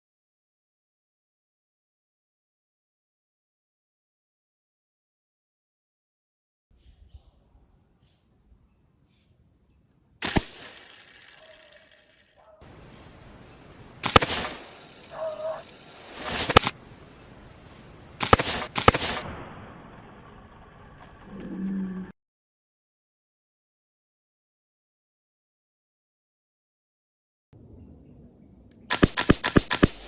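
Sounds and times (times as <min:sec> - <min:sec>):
slingshot sharp cracks: 0:10.2 - 0:12.2, 0:14.0 - 0:16.8, 0:18.2 - 0:19.3, 0:28.9 - 0:30.0.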